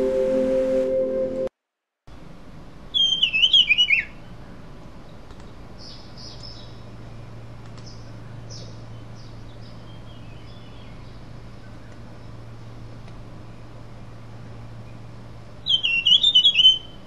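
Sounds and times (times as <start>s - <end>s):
steady low hum: 0.0s - 1.5s, 4.1s - 17.0s
bird whistled call: 3.0s - 4.2s, 15.6s - 17.0s
faint bird chirps: 3.0s - 4.6s, 15.6s - 17.0s.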